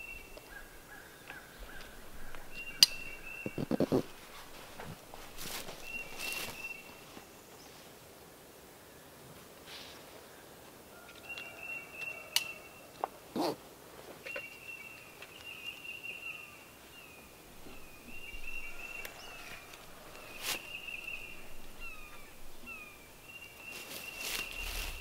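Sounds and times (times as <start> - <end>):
songbird singing trills: 0.0 - 7.8, 14.2 - 25.0.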